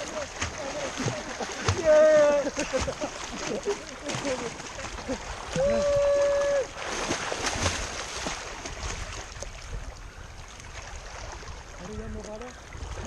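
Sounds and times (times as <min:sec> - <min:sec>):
knocks and splashes: 0:00.0 - 0:09.9
river water rushing and splashing: 0:00.0 - 0:13.0.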